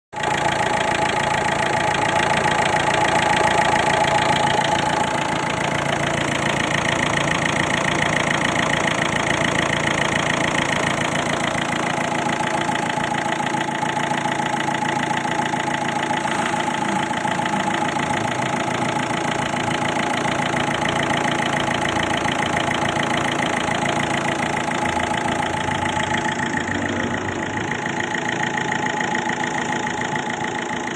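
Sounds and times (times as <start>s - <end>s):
car engine idling: 0.2s - 30.9s
steady whine: 14.5s - 20.6s.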